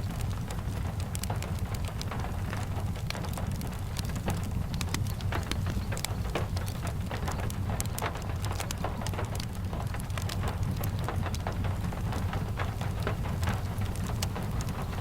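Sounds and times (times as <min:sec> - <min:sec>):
sharp ticks and pops: 0:00.0 - 0:15.0
steady rain falling: 0:00.0 - 0:15.0.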